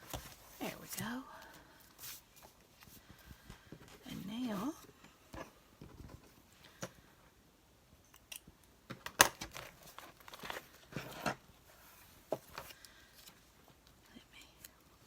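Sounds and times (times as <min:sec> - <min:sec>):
paper rustling and crinkling: 0:09.4 - 0:13.5.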